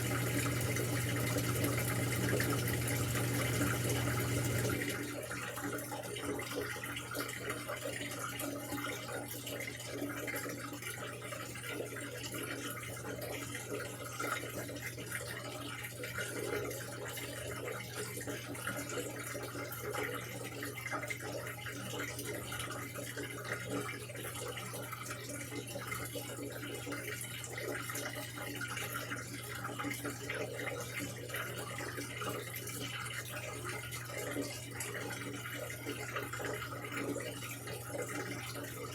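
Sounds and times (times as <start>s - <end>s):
low machine hum: 0.0s - 5.3s
water rushing into washing machine: 0.0s - 38.9s.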